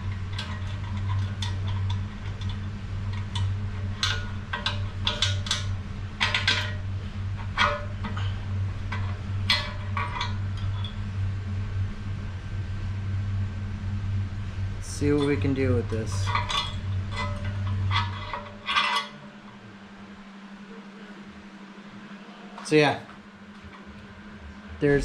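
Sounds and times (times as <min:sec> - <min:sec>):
steady low hum: 0:00.0 - 0:25.0
metal tools clinking and clanking: 0:00.2 - 0:06.8, 0:07.4 - 0:11.0, 0:14.9 - 0:19.3.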